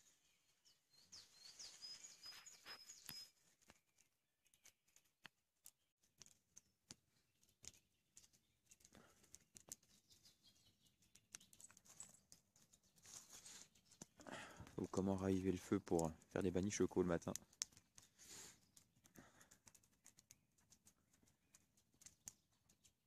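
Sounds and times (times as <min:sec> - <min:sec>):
small bird whistling high notes: 0:01.4 - 0:03.4
soft clicks and crackles: 0:01.7 - 0:23.0.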